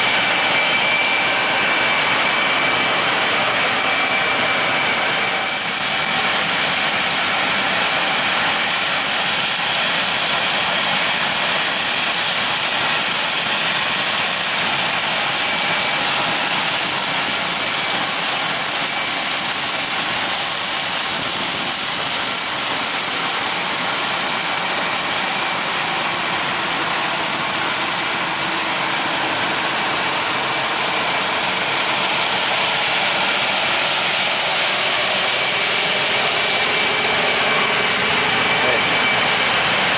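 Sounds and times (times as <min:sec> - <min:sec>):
combine harvester machine din: 0:14.1 - 0:39.9
thin high whine: 0:14.6 - 0:39.9.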